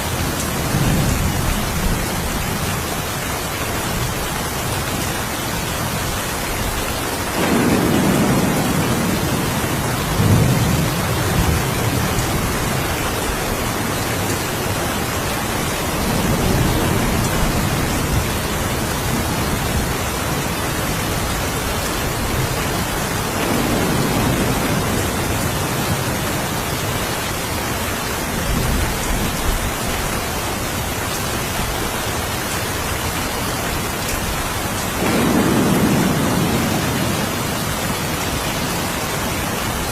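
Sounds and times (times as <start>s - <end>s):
steady rain falling: 0.0s - 39.9s
low thunder rumbling: 7.2s - 27.0s, 33.9s - 39.9s.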